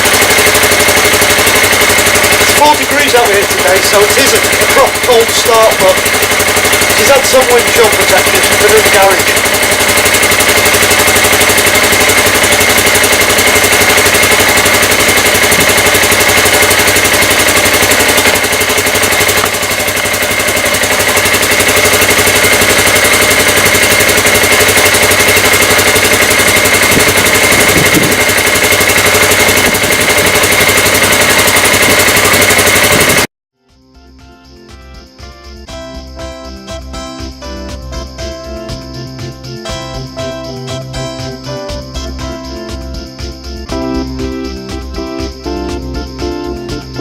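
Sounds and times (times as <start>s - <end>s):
engine idling: 0.0s - 33.3s
keyboard music: 0.0s - 47.0s.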